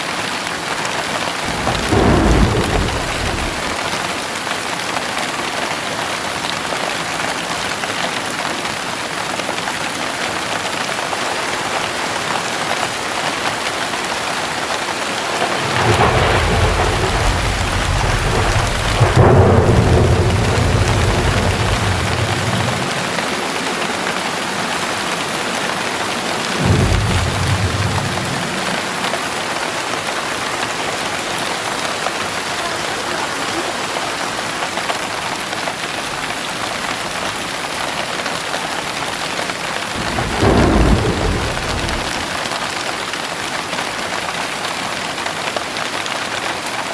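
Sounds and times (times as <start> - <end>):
heavy rain falling: 0.0 - 46.9
thunder rumbling: 1.3 - 4.6, 13.6 - 32.6, 38.9 - 42.6.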